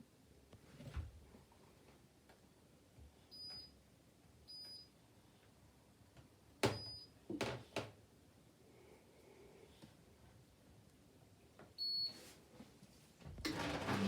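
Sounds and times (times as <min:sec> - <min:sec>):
washing machine panel beeps: 0:04.5 - 0:04.9, 0:06.7 - 0:07.2, 0:11.8 - 0:12.2.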